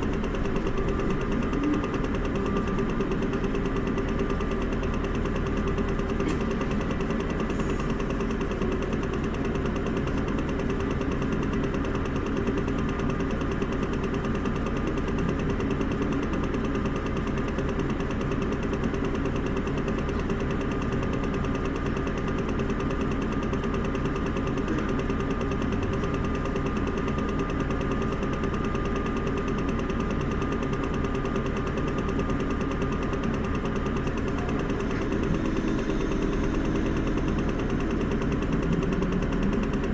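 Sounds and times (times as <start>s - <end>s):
bus diesel engine humming: 0.0s - 39.9s.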